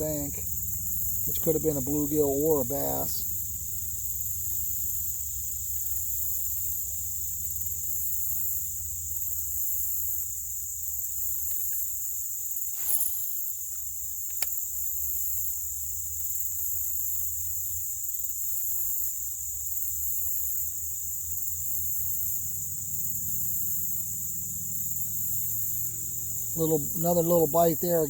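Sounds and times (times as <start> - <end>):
insects chorus: 0.0 - 28.0
sharp click: 14.3 - 14.6.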